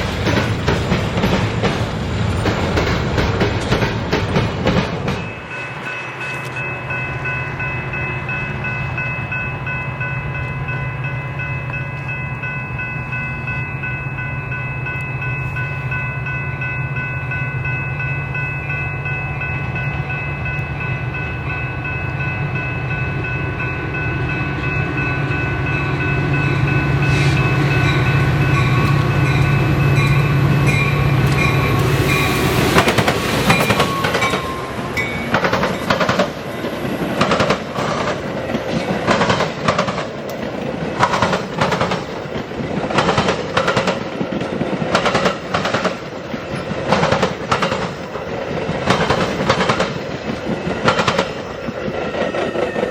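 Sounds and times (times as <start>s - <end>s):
diesel locomotive engine drone: 0.0s - 52.9s
steady chord of high tones: 5.1s - 38.8s.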